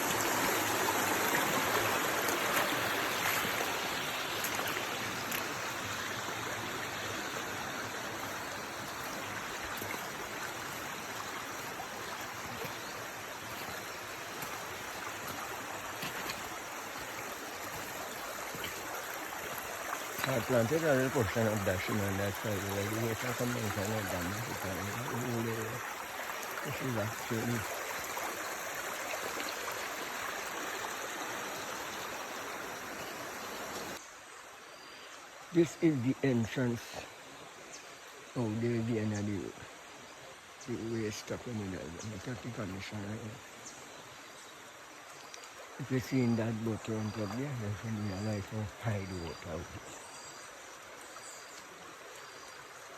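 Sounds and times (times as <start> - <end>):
floodwater rushing: 0.0 - 34.0, 44.8 - 52.9.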